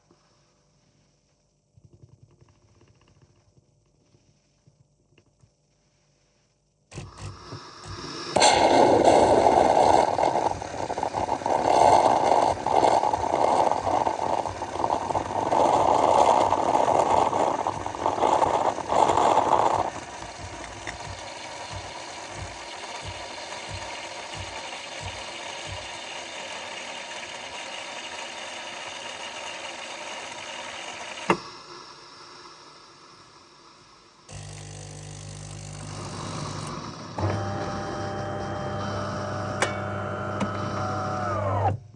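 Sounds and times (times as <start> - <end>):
coffee machine grinding: 6.9 - 31.3, 34.3 - 41.8
low steady motor or pump: 6.9 - 41.9
coffee machine humming: 7.0 - 32.2, 34.3 - 41.9.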